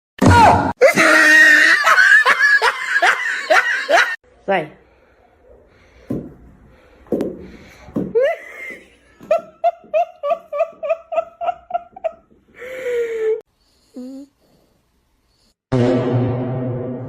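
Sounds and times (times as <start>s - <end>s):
person laughing: 0.8s - 4.2s, 8.1s - 13.4s.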